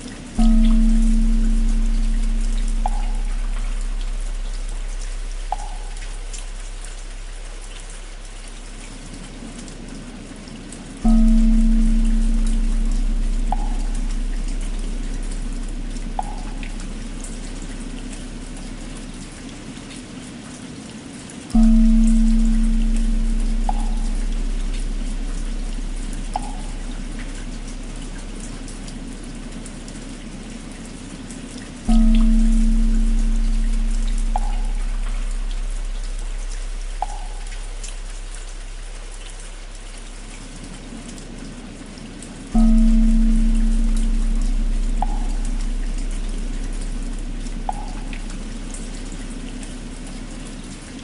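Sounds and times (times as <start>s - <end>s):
rain patter: 0.0s - 51.0s
struck bell humming: 0.4s - 7.3s, 11.0s - 19.1s, 21.6s - 29.2s, 31.9s - 38.8s, 42.6s - 50.5s.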